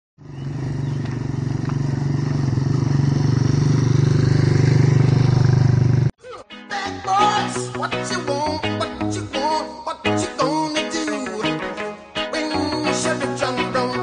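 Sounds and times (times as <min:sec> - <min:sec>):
motorcycle engine running: 0:00.2 - 0:06.1.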